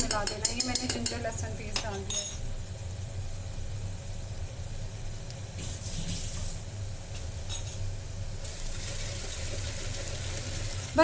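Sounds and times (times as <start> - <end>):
onions sizzling in hot oil: 2.4 - 11.0.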